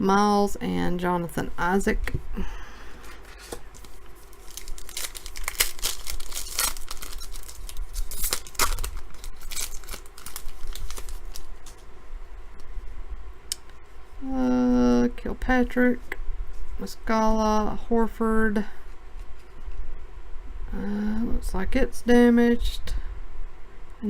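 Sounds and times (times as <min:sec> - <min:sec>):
foil wrapper crinkling and tearing: 0:03.2 - 0:11.8.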